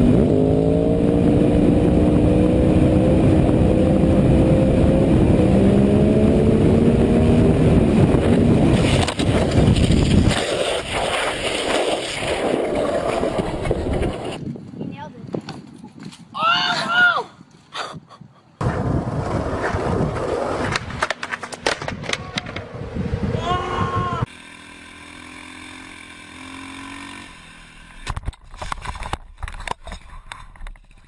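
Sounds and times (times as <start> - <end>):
vehicle engine accelerating: 0.0 - 9.8
rough rushing clatter: 8.2 - 14.4.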